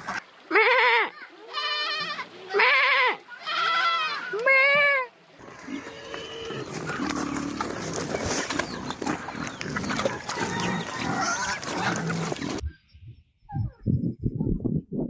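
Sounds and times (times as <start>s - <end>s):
farm animals grunting and squealing: 0.0s - 12.8s
scuffling: 6.4s - 12.6s.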